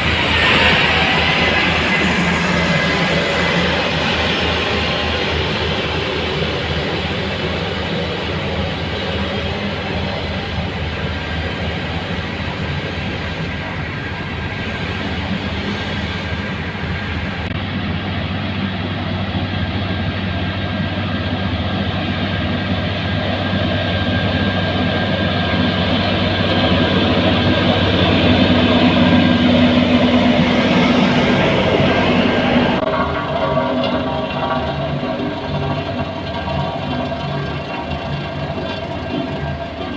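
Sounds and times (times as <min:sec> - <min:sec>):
heavy machinery engine drone: 0:00.0 - 0:39.9
wide rushing noise: 0:00.0 - 0:39.9.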